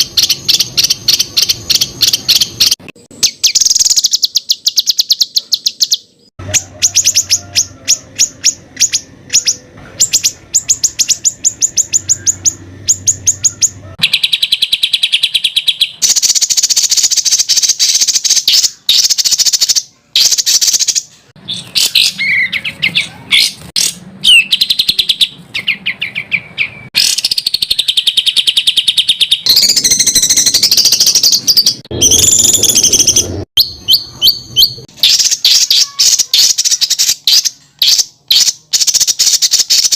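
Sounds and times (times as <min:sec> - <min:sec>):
songbird trilling song: 0:00.0 - 0:39.9
gliding whistles: 0:29.4 - 0:34.8.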